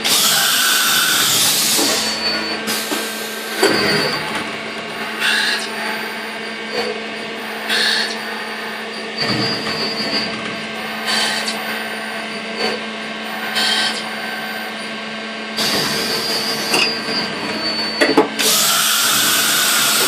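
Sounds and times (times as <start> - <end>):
short noisy cutting bursts: 0.0 - 3.6, 18.4 - 20.0
milling machine humming: 0.0 - 20.0.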